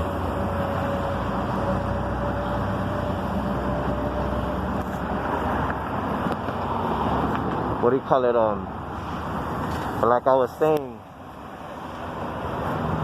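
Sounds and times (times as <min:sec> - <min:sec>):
road vehicle rumble: 0:00.0 - 0:13.0.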